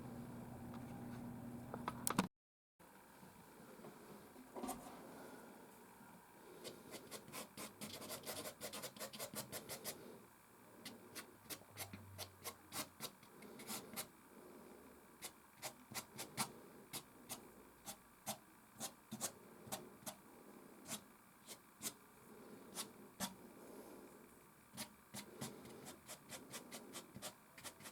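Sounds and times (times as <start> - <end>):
pastel scratching on canvas: 6.9 - 10.0, 24.8 - 27.9.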